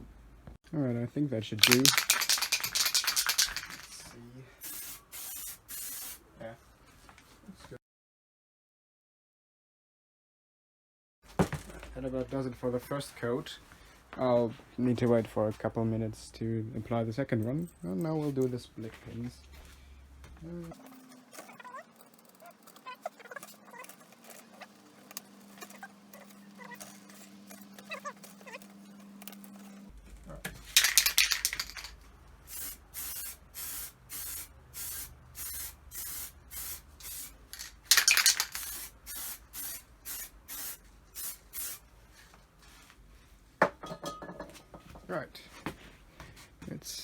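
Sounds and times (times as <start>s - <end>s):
spray can hissing: 1.6s - 4.0s, 4.6s - 6.2s, 30.8s - 31.9s, 32.5s - 41.8s
handling noise: 1.6s - 4.1s.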